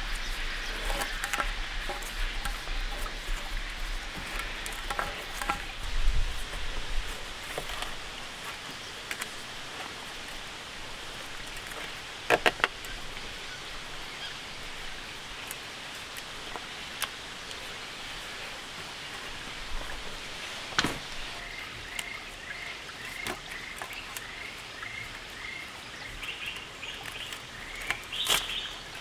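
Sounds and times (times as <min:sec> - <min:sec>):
rain hiss: 0:00.0 - 0:22.7.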